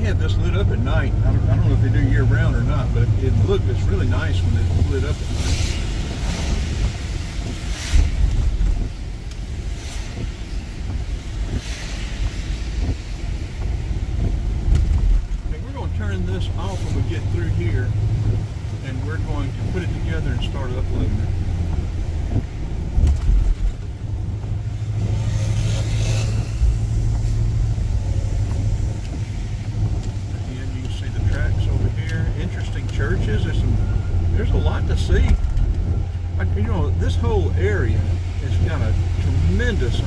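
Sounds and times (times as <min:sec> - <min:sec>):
car road rumble with tyre hiss: 0:00.0 - 0:40.0
brief swishes: 0:07.6 - 0:08.8.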